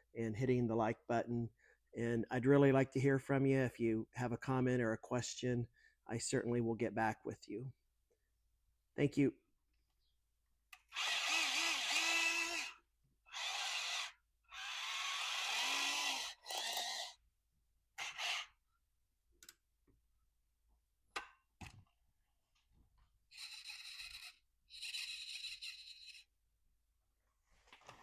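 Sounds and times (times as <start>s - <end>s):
small electric motors whirring: 10.9s - 12.7s, 13.3s - 17.2s, 18.0s - 18.6s, 23.3s - 26.3s.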